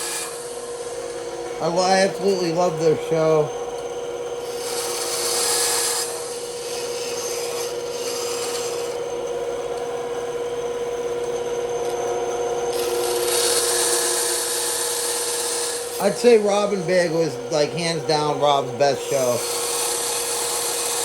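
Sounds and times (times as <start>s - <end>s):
bandsaw blade rasping through wood: 0.0s - 3.4s, 4.4s - 9.0s, 12.7s - 21.0s
bandsaw humming: 0.0s - 21.0s.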